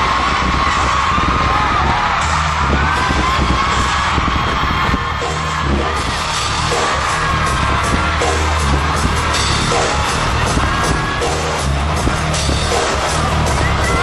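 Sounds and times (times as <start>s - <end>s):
heavy pulsing bass beat: 0.0s - 14.0s
live pop concert music: 0.0s - 14.0s.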